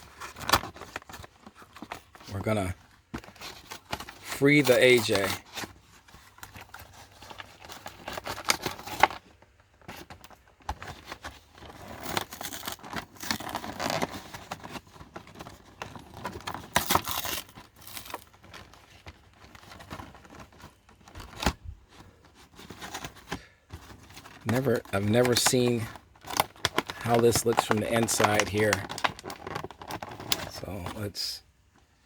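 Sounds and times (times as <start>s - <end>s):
cardboard card tearing: 0.0s - 31.3s
plastic blister crinkling: 0.0s - 32.0s.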